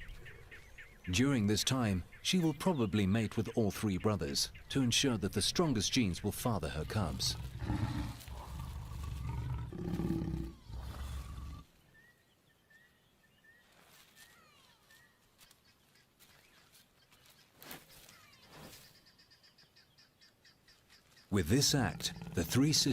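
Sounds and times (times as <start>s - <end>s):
lions growling and snarling: 6.8s - 11.7s, 21.7s - 22.9s
faint bird chirps: 10.4s - 21.4s.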